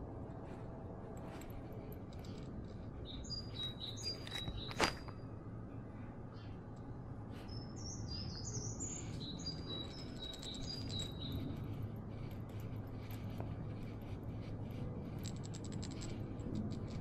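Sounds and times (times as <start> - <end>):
low background rumble: 0.0 - 17.0
songbird chirping: 2.1 - 13.3.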